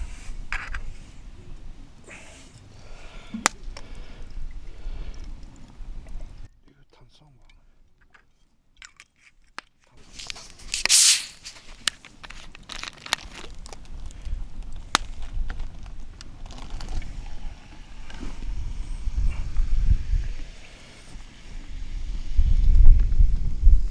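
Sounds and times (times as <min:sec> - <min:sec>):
short loud hiss: 0:10.0 - 0:11.9
campfire crackling and popping: 0:10.0 - 0:17.4
wind rumble on microphone: 0:13.7 - 0:23.9.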